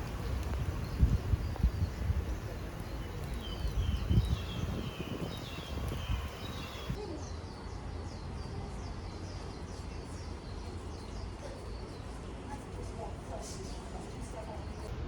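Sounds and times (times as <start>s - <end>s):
birds chirping: 0.0s - 7.0s
outdoor background noise: 0.0s - 15.0s.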